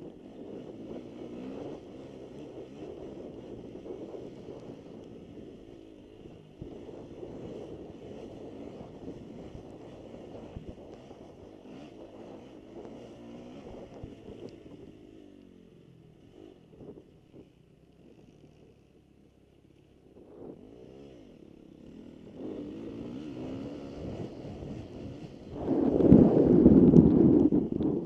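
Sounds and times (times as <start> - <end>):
motocross bike engines revving: 0.0 - 19.0, 19.6 - 28.0.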